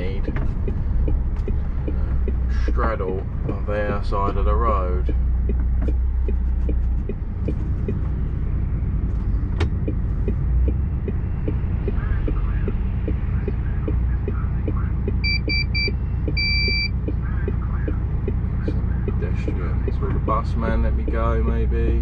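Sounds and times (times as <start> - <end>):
turn indicator clicking: 0.0 - 8.2, 9.5 - 22.0
diesel engine idling: 0.0 - 22.0
short high beeps: 15.2 - 16.9.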